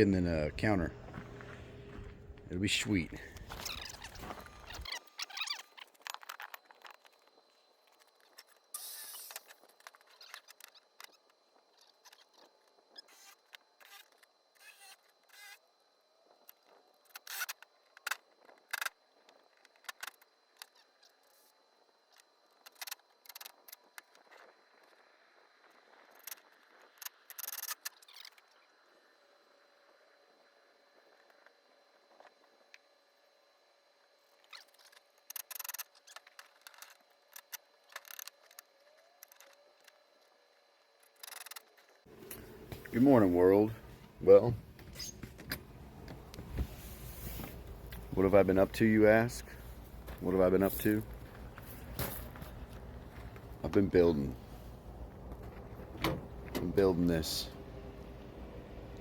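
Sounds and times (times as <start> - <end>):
faint steady hum: 0.0 - 4.9, 42.0 - 59.0
faint clicks and scraping: 34.4 - 48.4.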